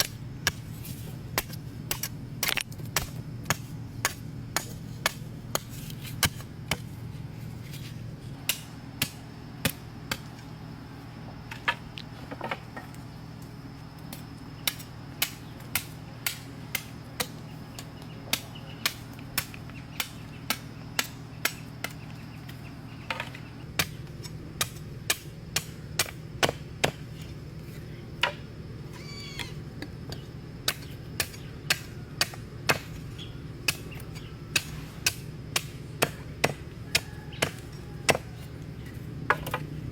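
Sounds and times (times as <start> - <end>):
hand tool chopping wood: 0.0 - 6.9, 8.4 - 10.3, 14.1 - 22.0, 24.6 - 27.3, 30.1 - 33.0, 33.6 - 38.4.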